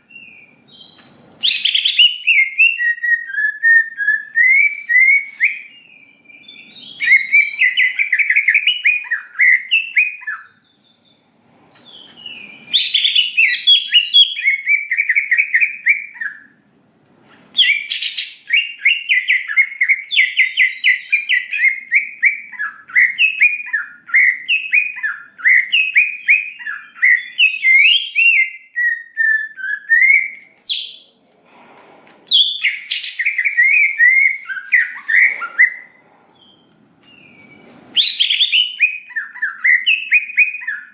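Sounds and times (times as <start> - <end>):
bird chattering song: 17.3 - 31.1, 32.3 - 40.9.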